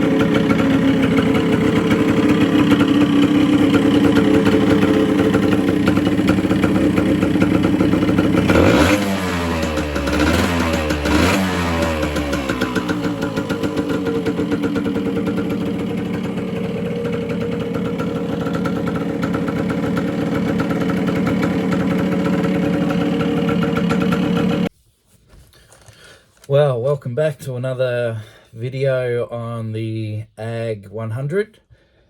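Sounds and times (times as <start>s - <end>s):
two-stroke motorcycle engine running: 0.0s - 24.7s.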